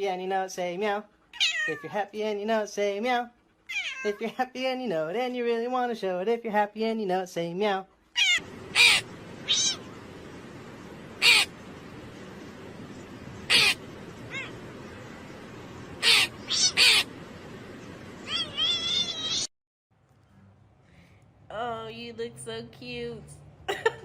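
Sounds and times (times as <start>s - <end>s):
harsh animal calls: 8.2s - 10.0s, 11.1s - 11.6s, 13.4s - 15.0s, 15.9s - 17.2s, 18.2s - 19.5s
steady background hiss: 8.4s - 19.5s.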